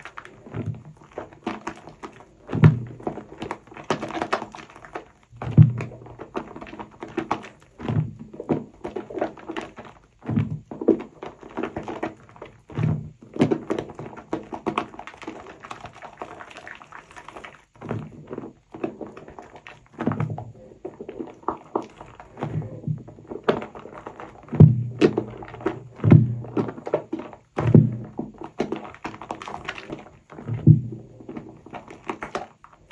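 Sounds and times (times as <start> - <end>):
soapy sponge squelching in foam: 0.0 - 32.9.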